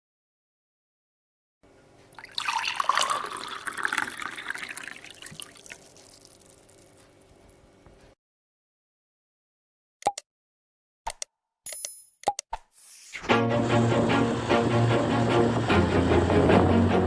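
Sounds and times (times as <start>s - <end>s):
water splashing and dripping: 2.2s - 6.9s.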